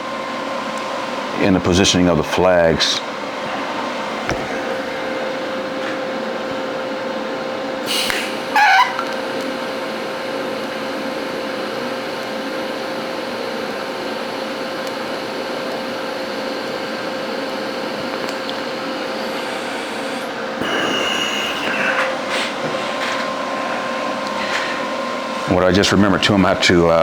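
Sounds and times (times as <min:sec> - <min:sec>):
constant hum: 0:00.0 - 0:27.0
welding arc hissing: 0:07.8 - 0:11.6, 0:14.1 - 0:25.4.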